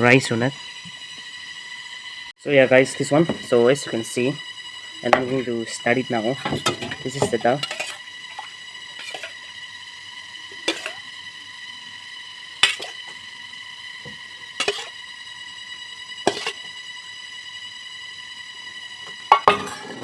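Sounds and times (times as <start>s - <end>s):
high-pitched whine: 0.0s - 20.0s.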